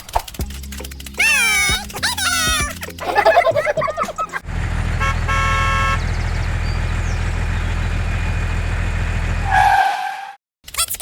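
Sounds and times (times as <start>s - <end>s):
tractor engine humming: 0.3s - 9.7s
horn tooting: 4.7s - 6.2s.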